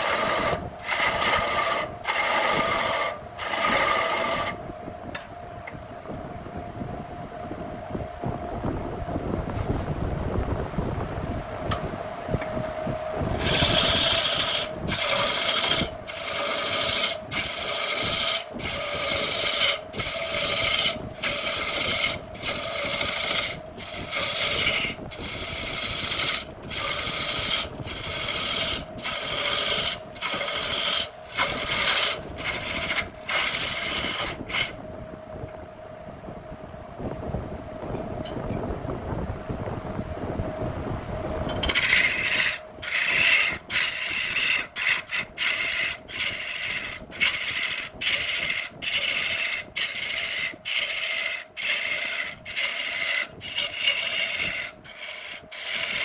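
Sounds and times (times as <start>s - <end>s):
lathe humming: 0.0s - 4.6s, 11.7s - 34.9s, 41.5s - 56.0s
tool scraping spinning wood: 0.0s - 4.6s, 12.4s - 34.8s, 41.4s - 56.0s.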